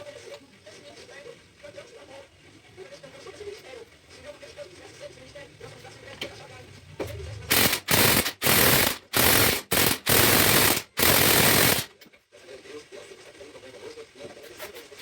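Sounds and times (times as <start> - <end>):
impact wrench hammering: 7.5 - 11.9.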